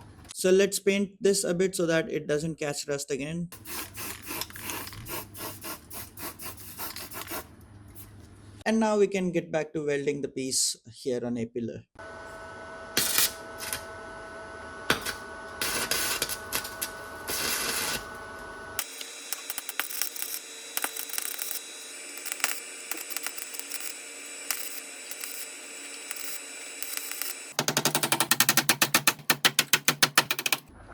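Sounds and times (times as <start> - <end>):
welder crackling: 13.0 - 13.9, 14.9 - 30.7.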